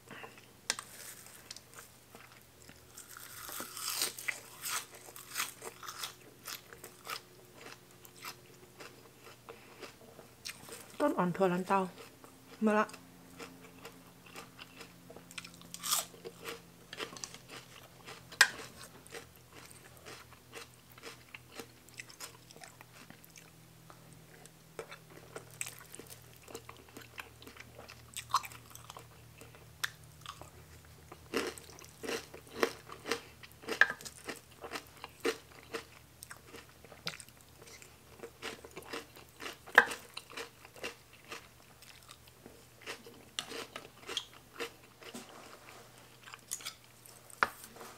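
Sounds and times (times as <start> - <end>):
crunching of raw vegetables: 0.2 - 11.0, 13.3 - 23.6.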